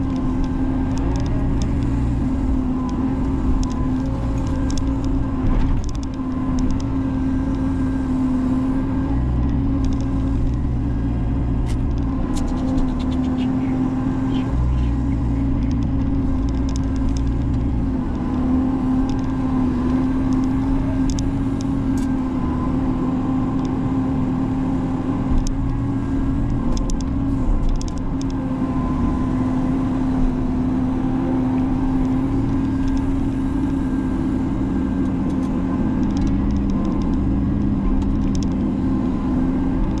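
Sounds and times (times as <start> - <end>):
diesel engine rumbling: 0.0 - 40.0
sharp clicks and knocks: 2.8 - 6.9, 14.8 - 18.4, 35.0 - 38.6.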